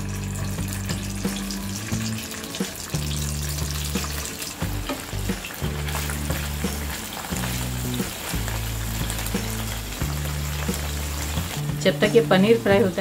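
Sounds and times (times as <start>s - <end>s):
background music: 0.0s - 13.0s
cheese sizzling in frying pan: 0.0s - 13.0s
wooden spatula in pan: 3.8s - 11.8s.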